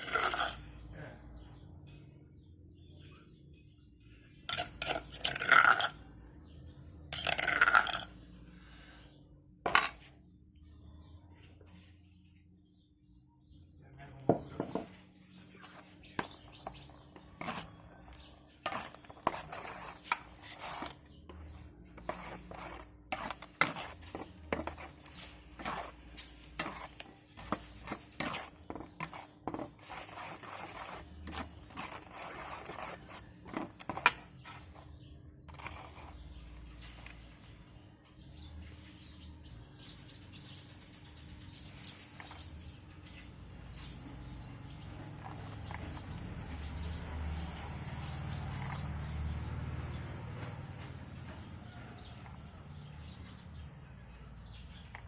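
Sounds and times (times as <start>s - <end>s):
food preparation clicks and knocks: 14.3s - 15.0s.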